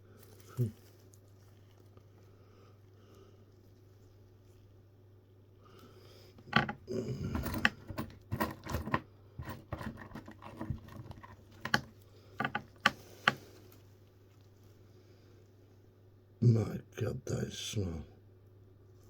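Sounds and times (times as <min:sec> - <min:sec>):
tool scraping: 0:07.4 - 0:13.4.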